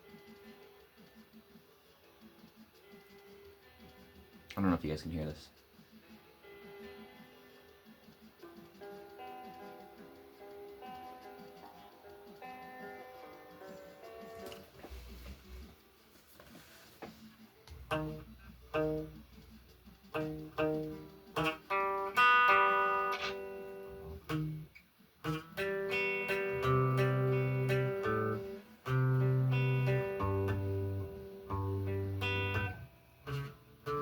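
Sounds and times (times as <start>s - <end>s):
guitar playing: 6.4s - 15.7s, 17.6s - 34.0s.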